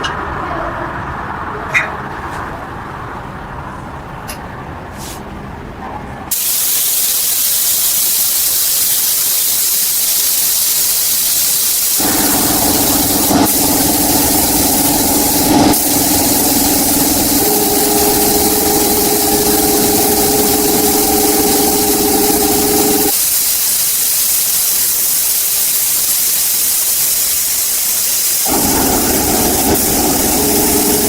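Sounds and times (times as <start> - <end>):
loud steady hiss: 6.3 - 31.0
motor humming: 12.0 - 23.1, 28.5 - 31.0.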